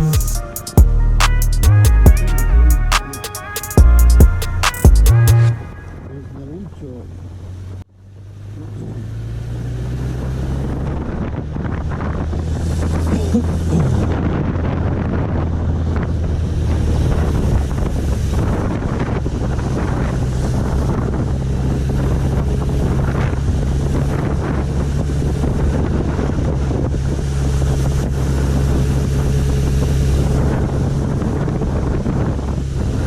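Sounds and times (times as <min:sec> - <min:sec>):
motorcycle engine droning: 0:00.0 - 0:33.0
wind rushing over microphone: 0:09.1 - 0:33.0.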